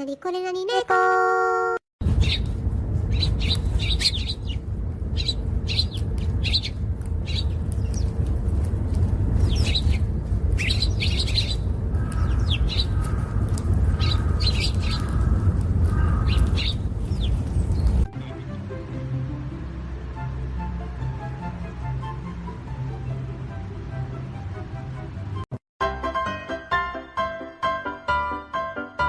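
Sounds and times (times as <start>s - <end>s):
small birds chirping: 2.0s - 18.1s
steady low rumble: 2.0s - 25.3s
lower repeated bird call: 10.6s - 17.3s.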